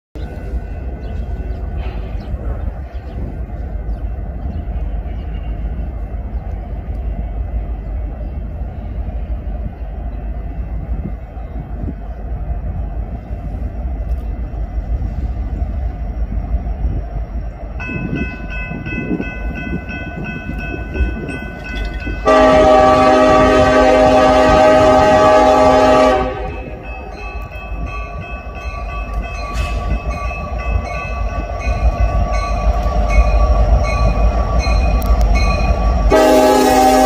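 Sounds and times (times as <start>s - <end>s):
locomotive air horn: 22.2s - 26.8s, 36.1s - 37.0s.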